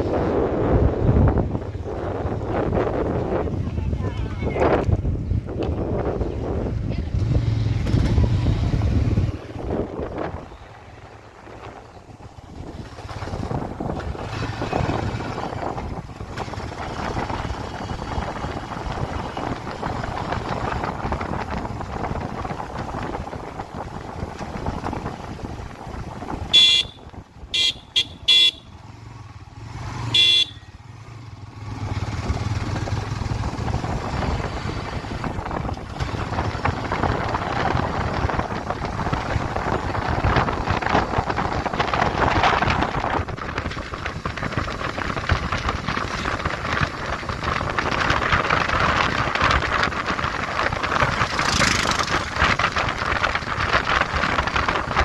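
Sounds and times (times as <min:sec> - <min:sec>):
motorcycle engine and wind: 0:00.0 - 0:55.0
vehicle horn honks: 0:26.5 - 0:28.8, 0:30.1 - 0:30.7.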